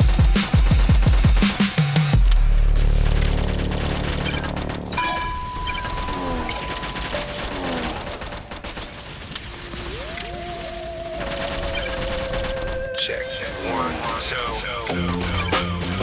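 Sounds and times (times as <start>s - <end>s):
wavering whistle: 9.6s - 14.3s.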